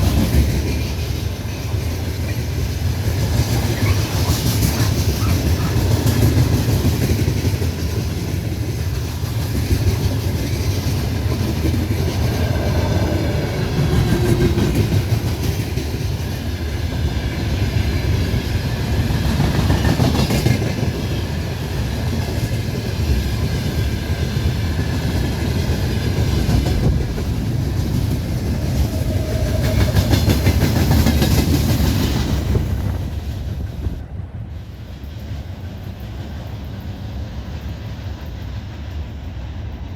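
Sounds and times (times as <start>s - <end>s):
train wheels clattering over rails: 0.0s - 39.5s.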